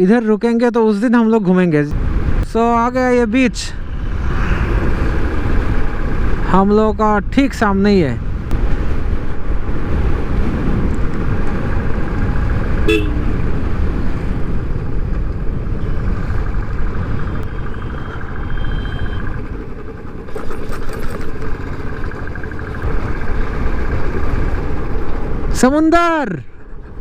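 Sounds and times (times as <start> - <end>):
motorcycle engine rumble: 8.3 - 25.8
vehicle horn toot: 12.8 - 13.3.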